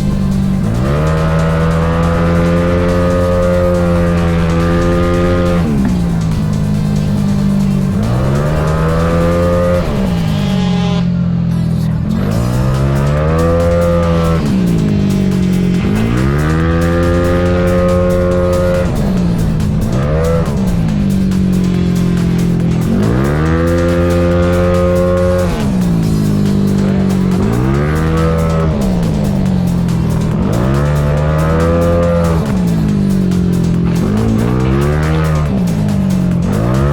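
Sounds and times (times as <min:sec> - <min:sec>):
scooter engine revving: 0:00.0 - 0:36.9.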